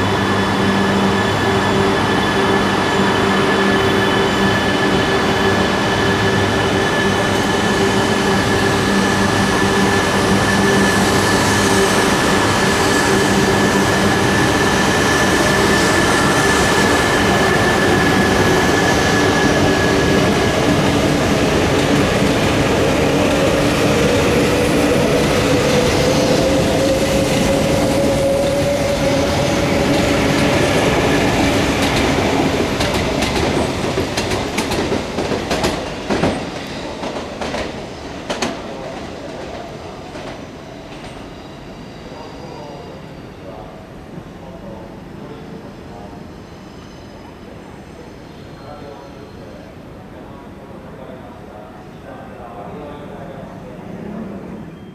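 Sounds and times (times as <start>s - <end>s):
train wheels rumbling: 0.0s - 41.3s.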